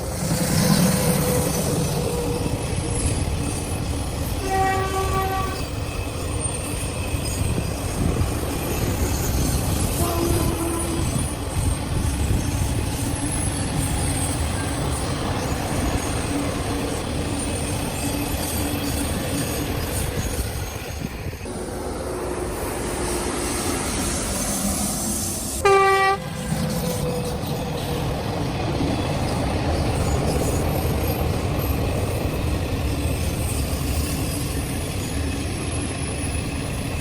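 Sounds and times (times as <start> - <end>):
train rumbling and rattling: 0.0 - 37.0
locomotive horn blast: 4.4 - 5.6, 10.0 - 11.2, 25.6 - 26.3.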